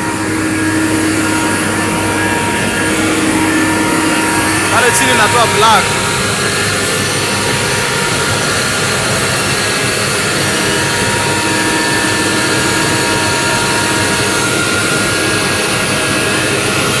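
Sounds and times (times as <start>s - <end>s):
faint held whine: 0.0s - 8.3s
diesel engine running: 0.0s - 17.0s.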